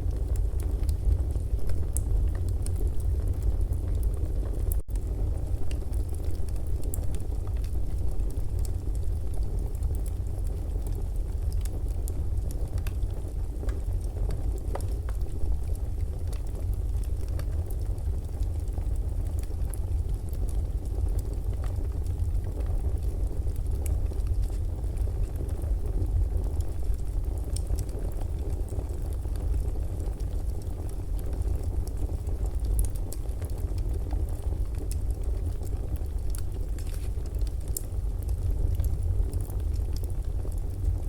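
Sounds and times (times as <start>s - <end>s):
fire crackling: 0.0s - 41.0s.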